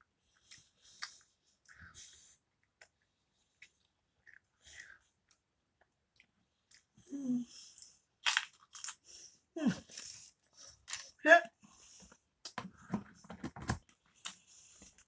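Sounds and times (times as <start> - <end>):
crisp crunching while chewing: 7.8 - 9.1.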